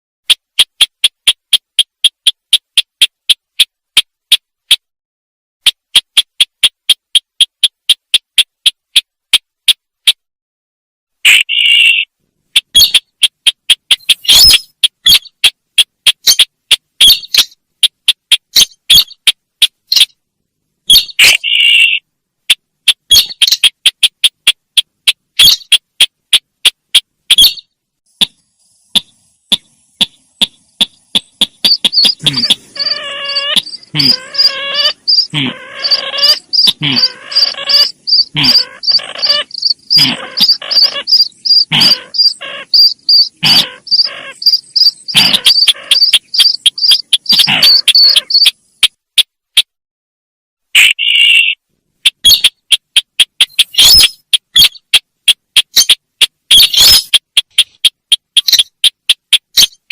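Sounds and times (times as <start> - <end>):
sharp bird chips: 0.3 - 4.8, 11.2 - 20.2, 20.9 - 49.7, 50.8 - 59.9
harsh buzzy bird calls: 11.2 - 20.2, 20.8 - 26.4, 27.0 - 48.9, 50.8 - 55.0, 55.6 - 58.9
high pulsing bird trill: 11.2 - 20.2, 28.6 - 48.9.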